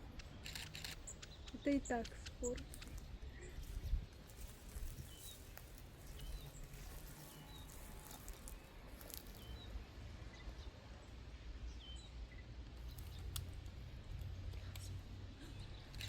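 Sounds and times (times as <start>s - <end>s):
small bird chirping: 0.0s - 10.6s.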